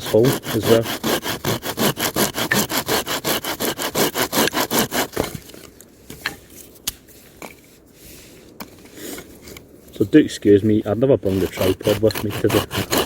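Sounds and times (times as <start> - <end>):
hand saw cutting wood: 0.0 - 5.4, 11.2 - 13.0.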